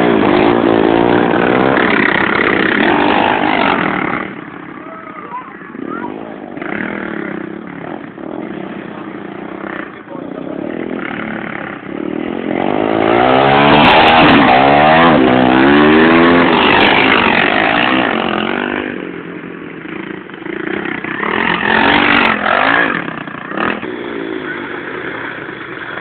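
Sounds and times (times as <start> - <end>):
pit bike engine revving: 0.0 - 26.0.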